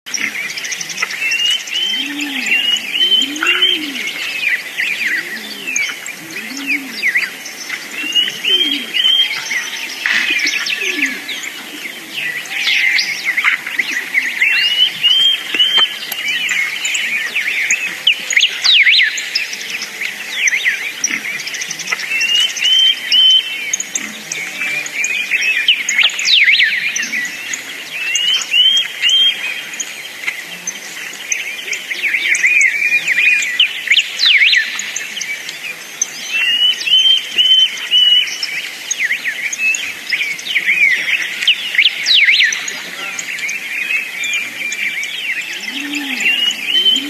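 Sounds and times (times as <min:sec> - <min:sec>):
birds chirping: 0:00.1 - 0:47.0
low slow arched bird calls: 0:00.1 - 0:47.0
rising bird phrase: 0:01.8 - 0:07.4.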